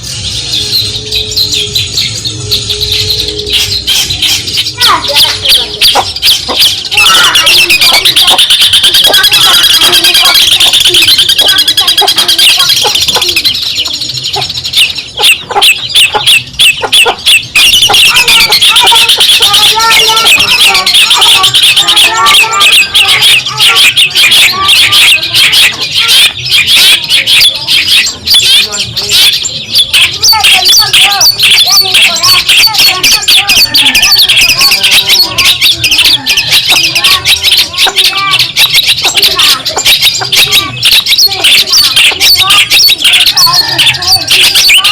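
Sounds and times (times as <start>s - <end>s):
shrike singing: 0.0s - 44.9s.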